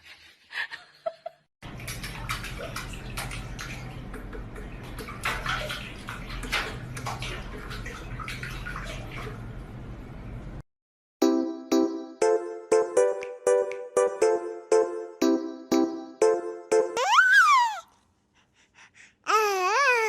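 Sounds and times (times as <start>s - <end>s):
water running and splashing: 1.7s - 9.6s.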